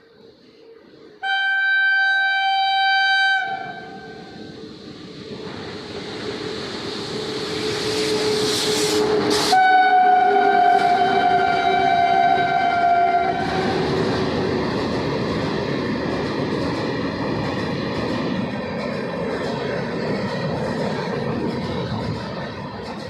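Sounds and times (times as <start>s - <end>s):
train rumbling past: 0.0s - 23.0s
train horn blowing: 1.2s - 4.4s, 8.0s - 13.8s.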